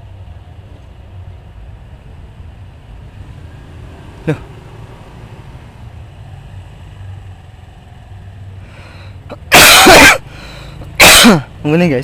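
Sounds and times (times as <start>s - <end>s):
person sneezing loudly: 9.3s - 10.3s, 11.0s - 11.5s.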